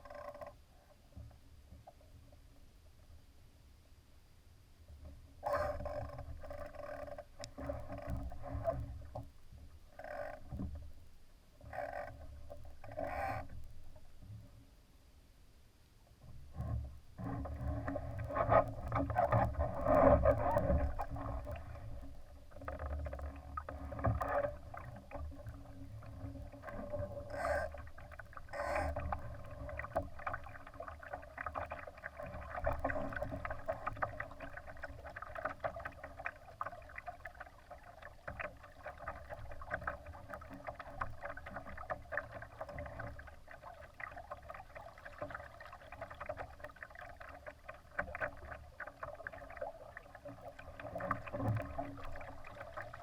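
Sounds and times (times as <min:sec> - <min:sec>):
water splashing against boat hull: 0:16.3 - 0:53.0.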